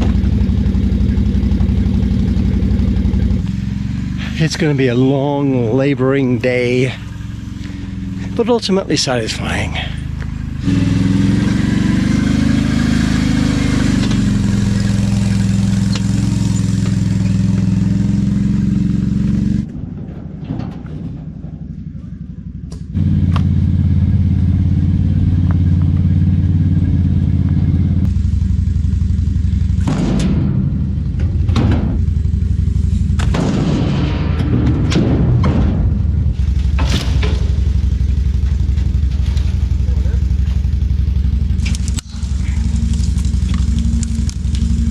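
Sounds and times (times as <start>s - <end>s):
engine running steadily: 0.0s - 44.9s.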